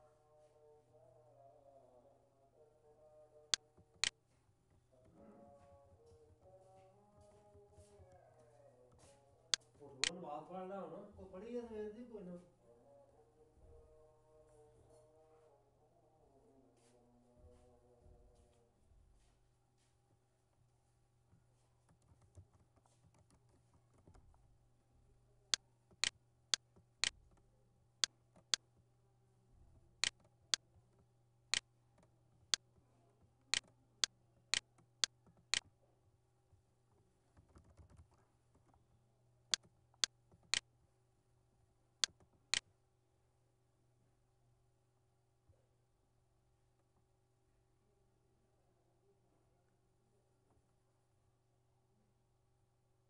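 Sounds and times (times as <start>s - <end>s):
faint low hum: 0.0s - 53.0s
keyboard and mouse clicks: 37.4s - 38.8s.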